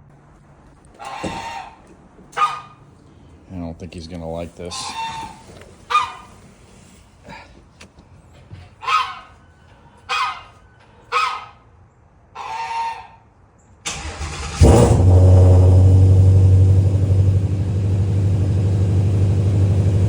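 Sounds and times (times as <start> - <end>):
goose honking: 1.0 - 2.8, 4.6 - 6.4, 8.8 - 9.4, 10.0 - 11.6, 12.4 - 13.2
car engine starting and idling: 13.8 - 20.0.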